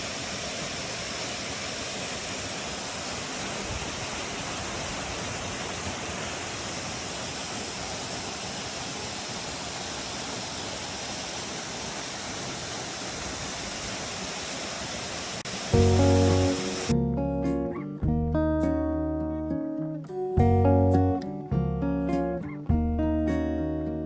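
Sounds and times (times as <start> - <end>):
waterfall pouring and splashing: 0.0 - 16.9.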